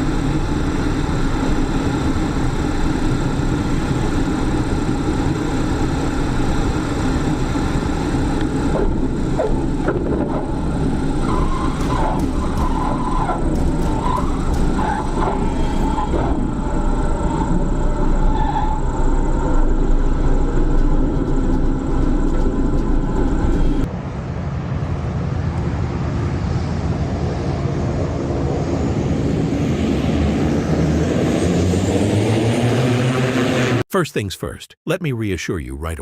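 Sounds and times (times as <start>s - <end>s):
low hum: 0.0s - 27.3s
aircraft engine noise: 0.0s - 34.3s.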